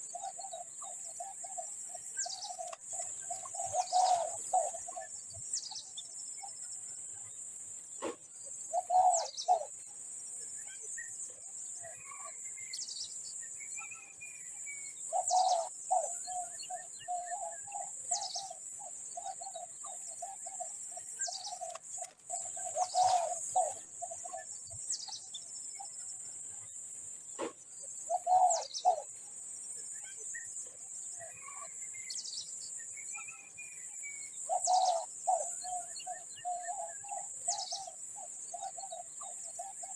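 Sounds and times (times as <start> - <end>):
rapidly pulsed bird calls: 0.0 - 6.6, 15.1 - 26.0.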